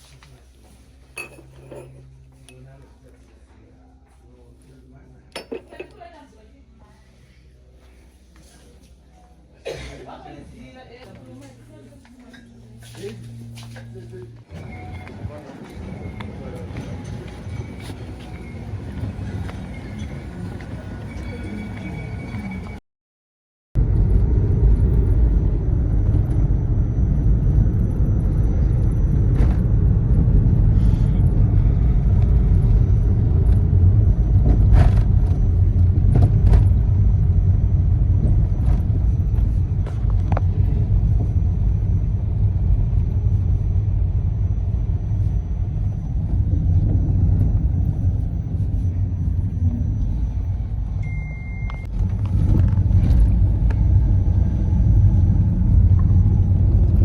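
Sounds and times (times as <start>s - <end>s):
car road and engine rumble: 12.6s - 22.8s, 23.8s - 57.0s
short beep: 51.0s - 51.9s.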